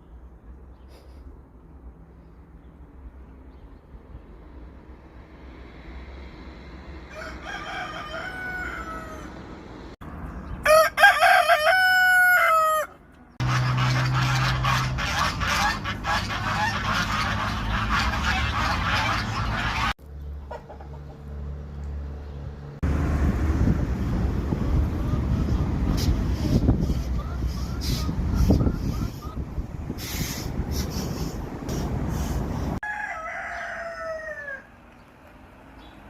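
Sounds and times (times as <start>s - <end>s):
rooster crowing: 7.0s - 9.5s, 10.6s - 13.0s, 32.8s - 34.8s.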